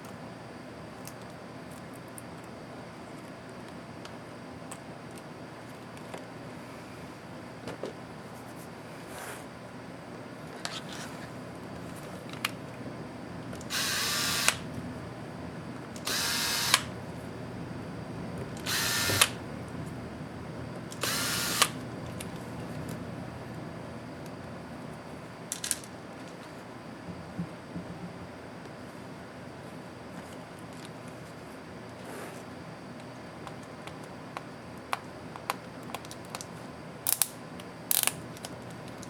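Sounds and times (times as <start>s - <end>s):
screwdriver sharp click: 13.6s - 14.6s, 16.0s - 16.9s, 18.6s - 19.4s, 20.9s - 21.8s
electric screwdriver whine: 13.6s - 14.8s, 16.0s - 17.0s, 18.4s - 19.6s, 20.9s - 23.1s
handling clicks: 18.4s - 19.8s.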